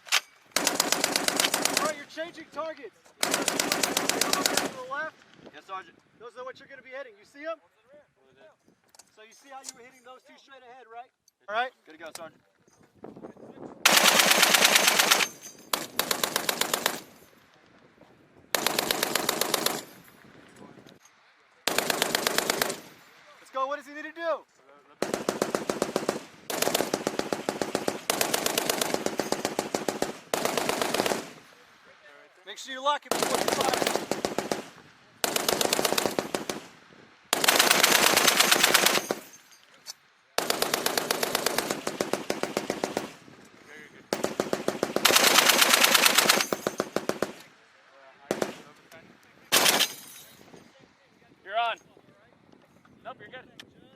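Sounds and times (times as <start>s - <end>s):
heavy machine gun bursts: 0.6s - 2.1s, 3.2s - 4.8s, 13.9s - 17.1s, 18.6s - 20.0s, 21.7s - 23.0s, 25.0s - 31.4s, 33.1s - 36.7s, 37.3s - 39.3s, 40.4s - 43.2s, 44.1s - 47.4s, 49.5s - 50.0s.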